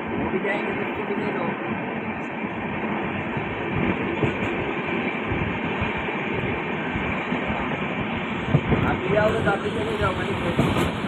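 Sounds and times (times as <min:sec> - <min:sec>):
train carriage rumbling on track: 0:00.0 - 0:11.0.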